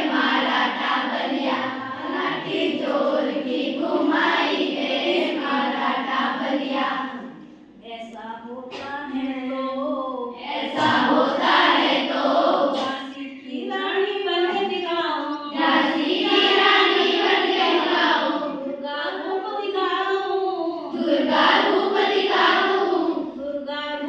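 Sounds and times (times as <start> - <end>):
children singing in chorus: 0.0 - 7.5, 10.3 - 13.8, 15.5 - 18.8, 20.9 - 23.4.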